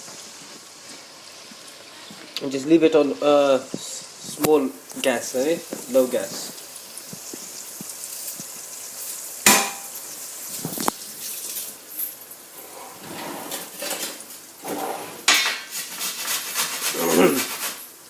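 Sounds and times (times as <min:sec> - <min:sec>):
pots and pans clattering: 0:09.4 - 0:17.9.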